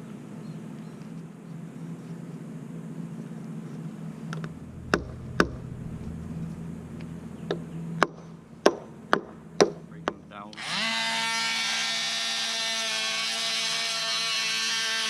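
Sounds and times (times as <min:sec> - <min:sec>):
steady low hum: 0:00.0 - 0:12.5
knocks on wooden frame: 0:08.0 - 0:10.2.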